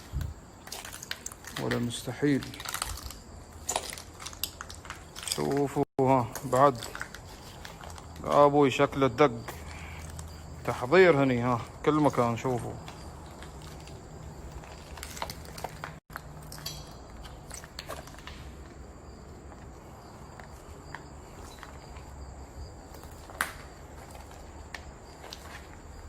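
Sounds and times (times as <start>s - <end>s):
footsteps crunching on debris: 0.0s - 26.0s.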